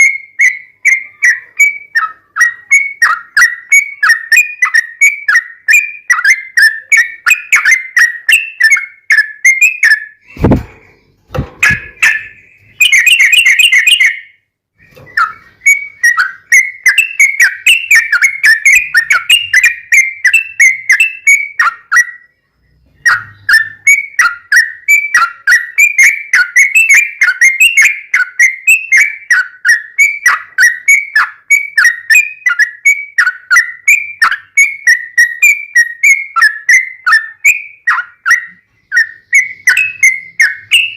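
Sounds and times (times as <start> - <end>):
bird singing whistled notes: 0.0 - 40.9
dull thump: 10.3 - 12.0.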